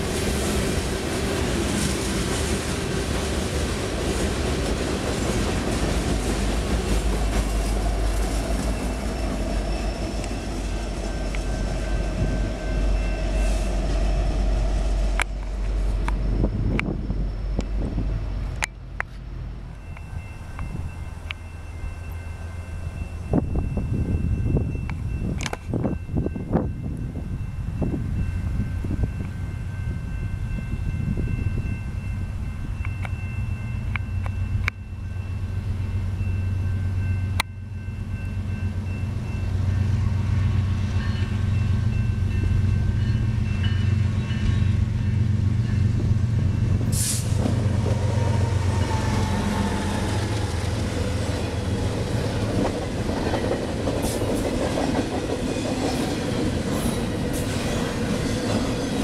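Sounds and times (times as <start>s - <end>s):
locomotive rumble: 0.0s - 59.0s
distant train horn: 6.4s - 18.3s, 35.3s - 52.4s.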